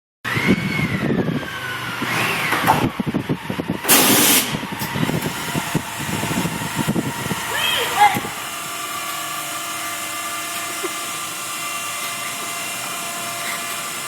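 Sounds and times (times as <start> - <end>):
short loud hiss: 3.9 - 4.6
motorcycle engine running: 4.6 - 13.5.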